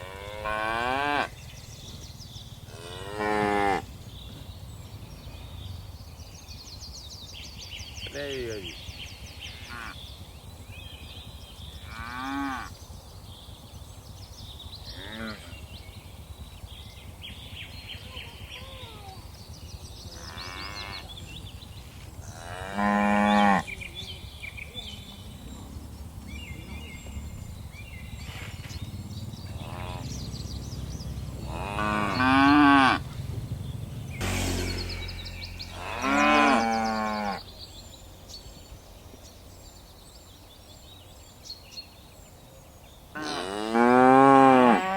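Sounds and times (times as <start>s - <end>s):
cattle mooing: 31.5s - 33.1s, 34.5s - 37.4s, 43.2s - 44.9s.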